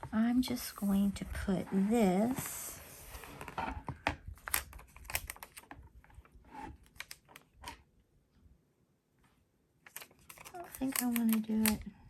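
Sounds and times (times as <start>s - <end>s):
paper tapping and crackling: 9.9s - 11.9s.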